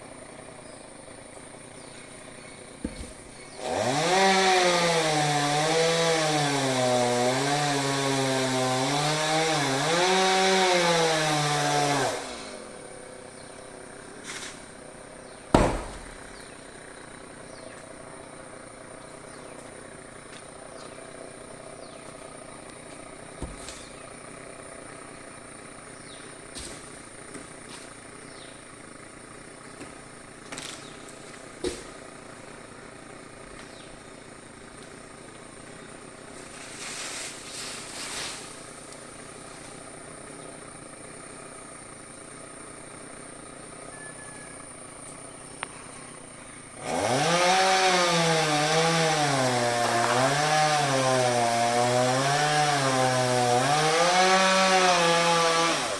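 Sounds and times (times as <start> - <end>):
chainsaw cutting wood: 0.5 - 44.0, 44.6 - 55.9
knocks: 15.6 - 16.2.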